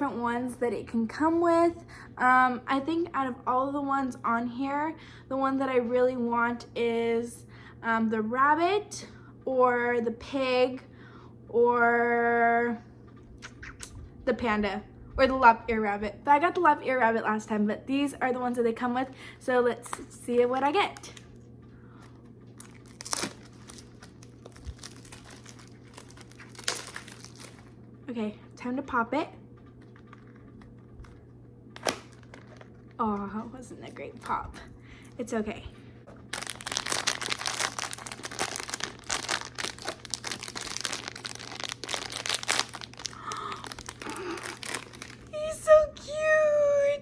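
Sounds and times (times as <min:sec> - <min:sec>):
packaging wrap crinkling and tearing: 0:22.6 - 0:27.7, 0:31.8 - 0:33.0, 0:36.2 - 0:45.4.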